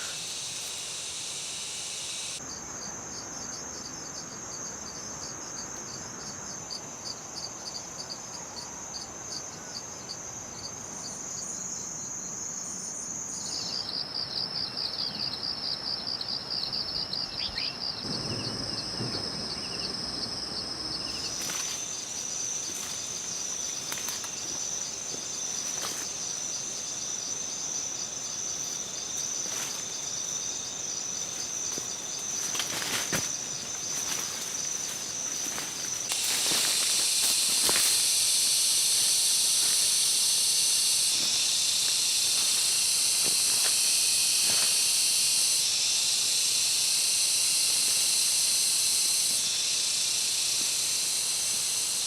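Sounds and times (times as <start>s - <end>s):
insects trilling: 0.0s - 52.0s.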